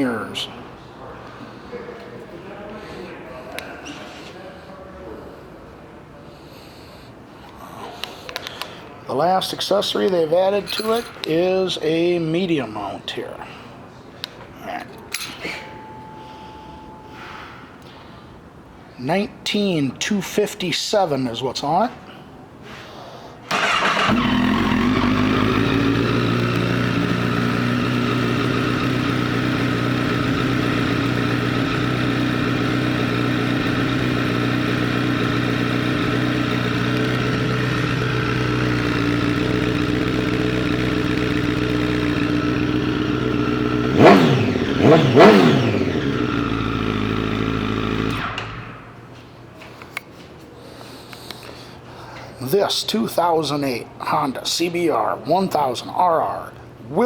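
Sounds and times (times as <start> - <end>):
motorcycle engine idling: 23.5 - 49.0
motorcycle engine revving: 23.5 - 49.0.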